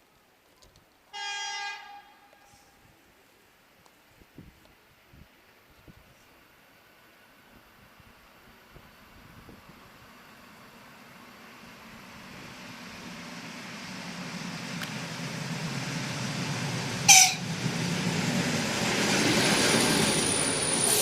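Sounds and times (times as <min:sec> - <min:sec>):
train horn toot: 0:01.1 - 0:02.8, 0:17.1 - 0:17.4
train rumbling along track: 0:07.8 - 0:21.0.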